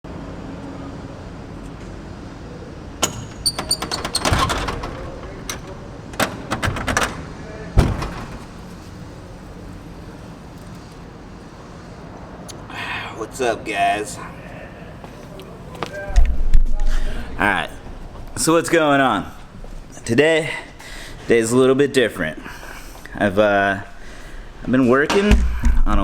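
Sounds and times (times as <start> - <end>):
steady background hiss: 0.1 - 26.0
sharp clicks and knocks: 3.0 - 8.9
heavy thump: 7.8 - 8.8, 25.3 - 26.0.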